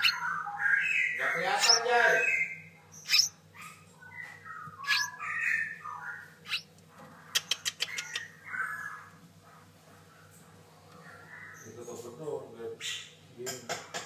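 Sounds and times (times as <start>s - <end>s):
bird chick squawking: 0.0s - 9.2s.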